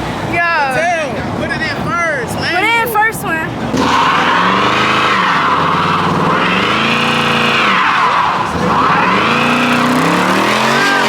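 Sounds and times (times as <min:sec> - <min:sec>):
car engine revving: 0:03.5 - 0:11.0
tyres squealing: 0:03.7 - 0:11.0.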